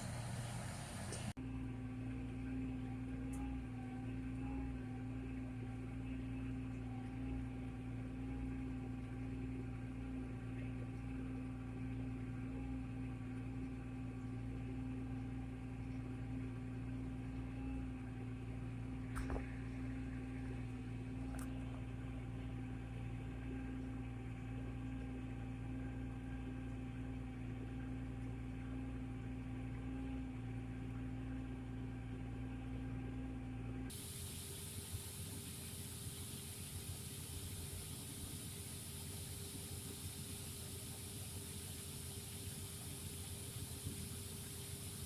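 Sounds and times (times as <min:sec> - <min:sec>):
farm machine engine drone: 0:00.0 - 0:45.0
steady hiss: 0:33.9 - 0:45.0.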